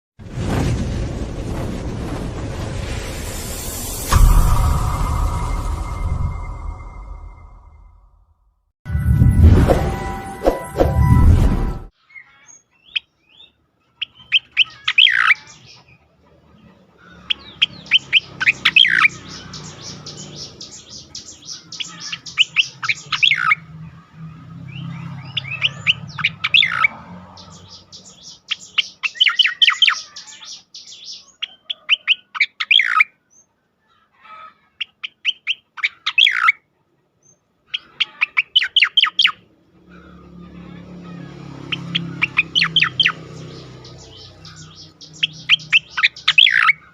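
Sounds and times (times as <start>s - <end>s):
bird rapid high chattering song: 17.3s - 23.6s, 25.3s - 33.0s, 41.7s - 46.8s.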